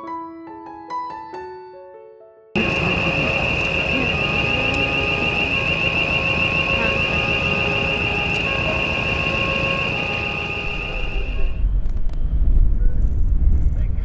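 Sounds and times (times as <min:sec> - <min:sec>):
fainter tones switching pitch: 0:02.6 - 0:12.1
wind rumble on microphone: 0:10.6 - 0:14.0.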